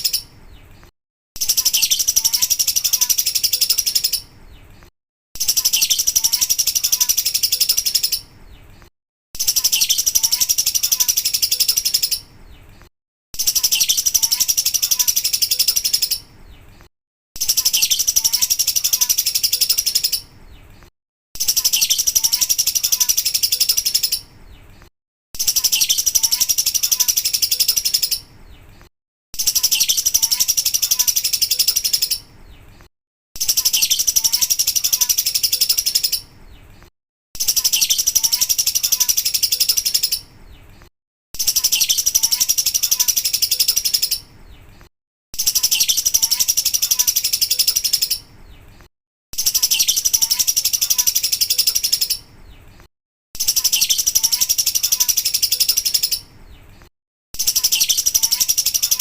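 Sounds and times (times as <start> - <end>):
bird chattering trill: 1.4 - 4.3, 5.4 - 8.3, 9.4 - 12.3, 13.4 - 16.3, 17.4 - 20.3, 21.4 - 24.3, 25.4 - 28.3, 29.4 - 32.3, 33.4 - 36.4, 37.4 - 40.3, 41.4 - 44.3, 45.4 - 48.3, 49.4 - 52.3, 53.4 - 56.3, 57.4 - 59.0.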